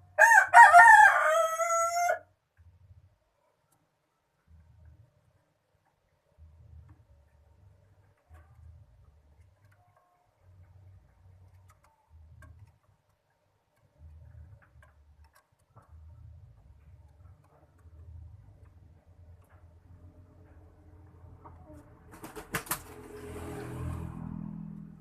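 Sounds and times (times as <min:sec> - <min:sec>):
faint clicks and ticks: 0:03.4 - 0:21.7.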